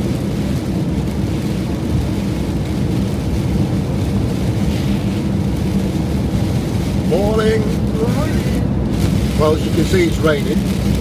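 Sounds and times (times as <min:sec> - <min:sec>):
van engine rumble from inside: 0:00.0 - 0:11.0.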